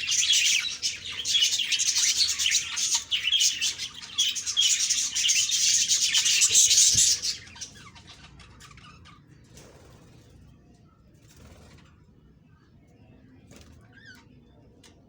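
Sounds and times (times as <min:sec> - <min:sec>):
budgerigars chirping: 0:00.0 - 0:09.4.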